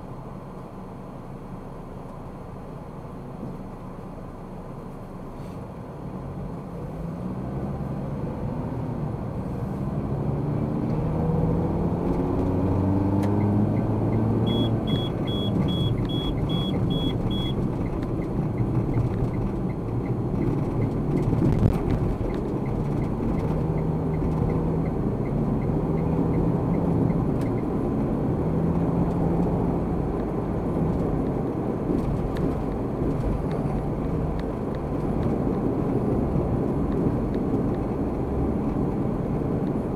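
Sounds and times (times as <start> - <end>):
car engine accelerating: 6.2 - 39.9
short high electronic beeps: 14.4 - 17.6.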